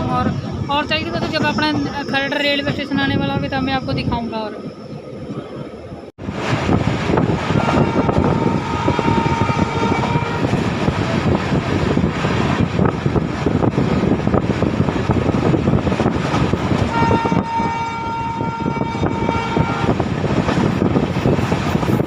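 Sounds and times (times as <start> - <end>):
train wheels rumbling on track: 0.0 - 22.0
locomotive horn blast: 7.6 - 10.6, 16.9 - 19.9.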